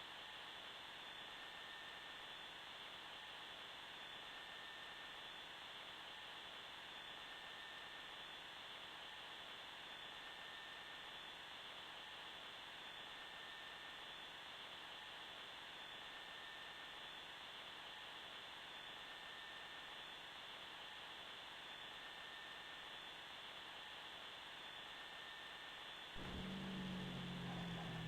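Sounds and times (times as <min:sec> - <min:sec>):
faint high tone: 0:26.2 - 0:28.0.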